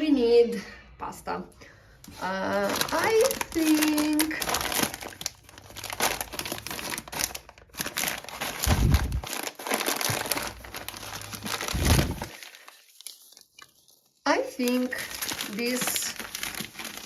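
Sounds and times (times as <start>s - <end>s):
plastic bag crinkling: 2.0s - 17.0s
dull low thumps: 8.6s - 9.3s.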